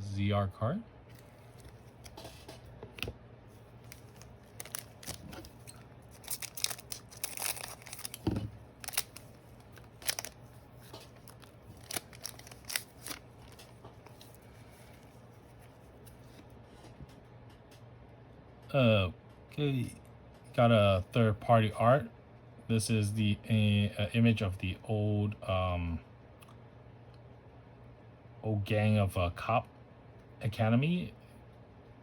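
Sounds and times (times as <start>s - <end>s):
trading cards clicking and rustling: 1.1s - 17.2s.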